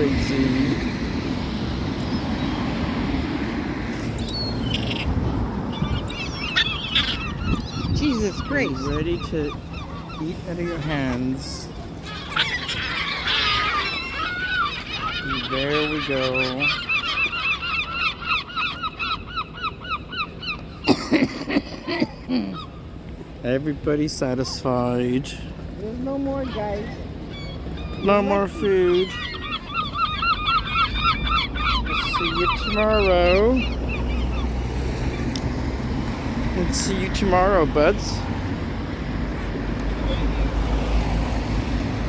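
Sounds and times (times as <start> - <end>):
faint seagull calls: 4.2 - 22.9, 26.0 - 34.6.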